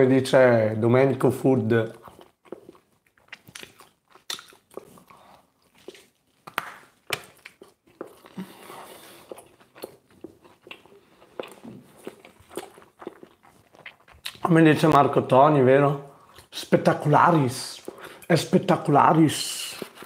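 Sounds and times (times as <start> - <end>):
person chewing pizza: 1.8 - 14.9, 17.3 - 18.7, 19.3 - 20.0
mouth clicks and smacks: 1.9 - 5.2, 5.8 - 8.6, 9.3 - 14.6.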